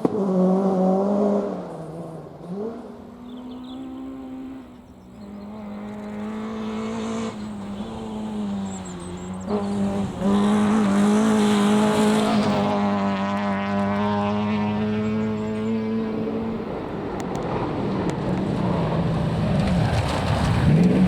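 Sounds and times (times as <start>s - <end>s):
rally car engine at high revs: 0.0s - 21.0s.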